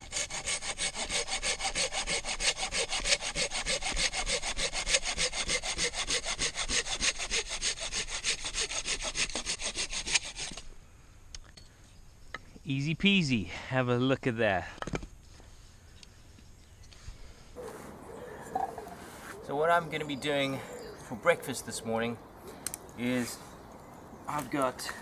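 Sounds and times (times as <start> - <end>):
pruning saw cutting wood: 0.0 - 10.7.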